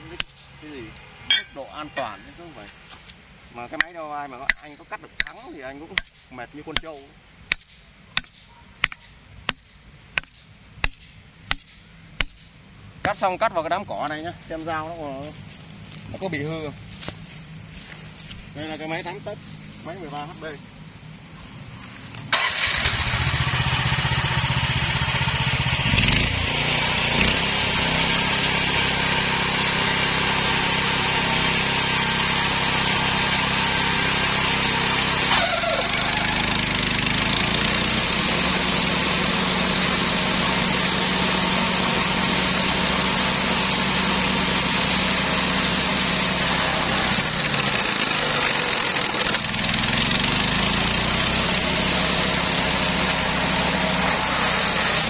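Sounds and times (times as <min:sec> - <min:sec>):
flail mower engine running: 0:22.1 - 0:55.0.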